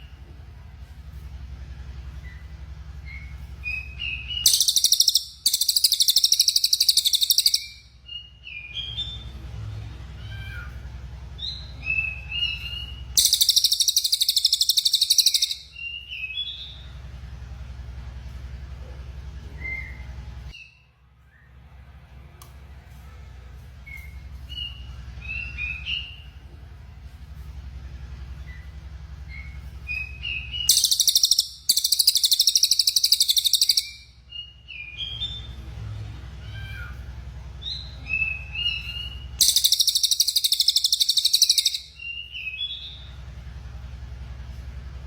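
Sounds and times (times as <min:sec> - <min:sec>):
steady low hum: 0:00.0 - 0:45.0
songbird chirping: 0:02.0 - 0:17.3, 0:28.2 - 0:36.2, 0:36.8 - 0:44.8.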